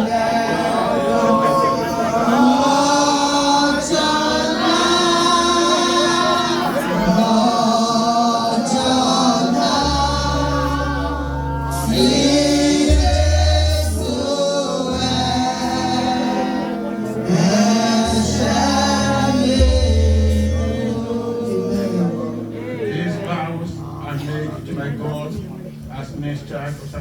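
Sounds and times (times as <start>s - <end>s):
congregation and choir singing hymn: 0.0s - 23.6s
bass accompaniment: 0.0s - 27.0s.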